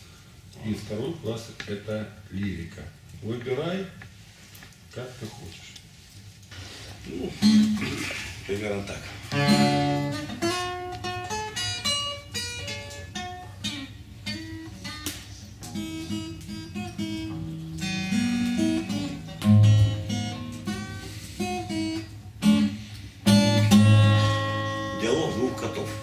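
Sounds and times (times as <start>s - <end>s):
acoustic guitar picking and strumming: 6.6s - 26.0s.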